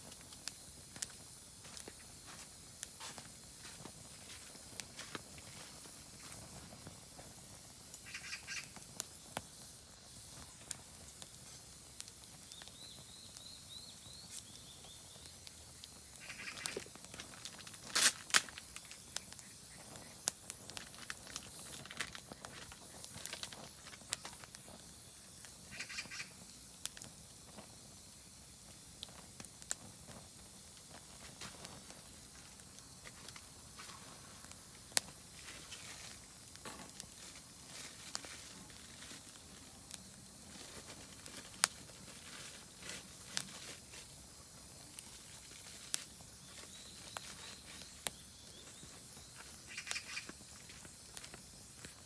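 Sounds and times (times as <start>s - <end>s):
campfire crackling and popping: 0.0s - 52.0s
bird calls: 8.0s - 8.7s, 16.1s - 16.8s, 25.7s - 26.4s, 46.5s - 50.4s
high bird chirps: 49.7s - 50.3s.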